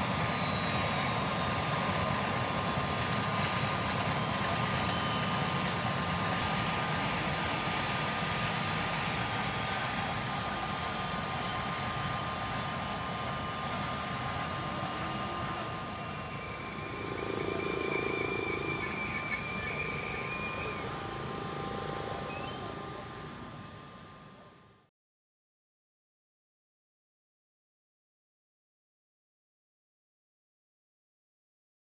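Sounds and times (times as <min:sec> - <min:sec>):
helicopter engines and rotor: 0:00.0 - 0:24.9.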